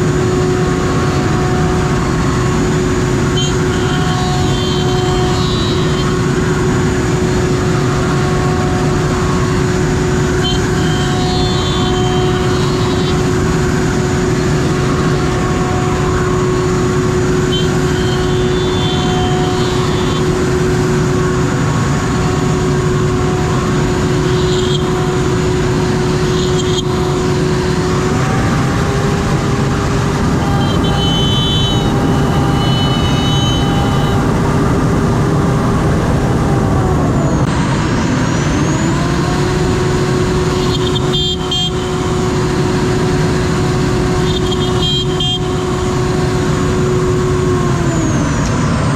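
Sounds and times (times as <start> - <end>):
loud rushing noise: 0.0 - 48.9
high-pitched wood cutting: 24.2 - 34.5.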